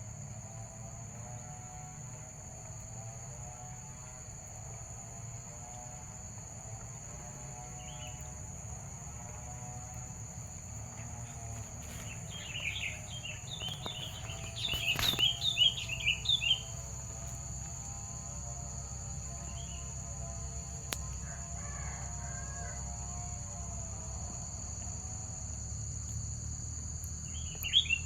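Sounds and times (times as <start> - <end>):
high insect drone: 0.0 - 28.0
bulbul chattering call: 12.3 - 16.8.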